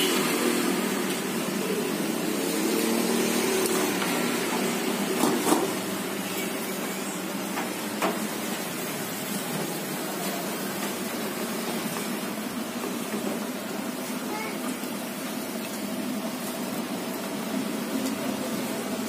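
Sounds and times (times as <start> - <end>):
street food stall din: 0.0 - 19.0.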